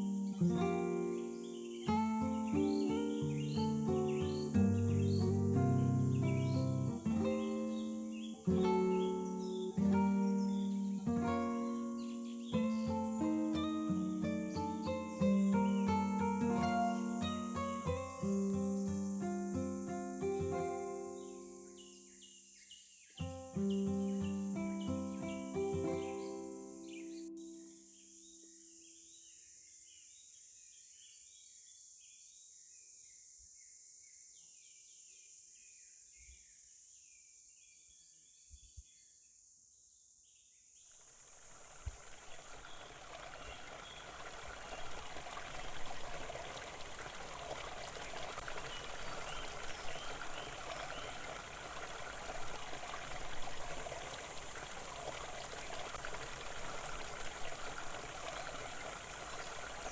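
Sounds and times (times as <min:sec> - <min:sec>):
stream water flowing: 0:00.0 - 0:21.6, 0:23.7 - 0:27.0, 0:41.0 - 0:59.9
birds chirping: 0:00.0 - 0:29.0, 0:41.4 - 0:59.9
faint steady hiss: 0:00.0 - 0:59.9.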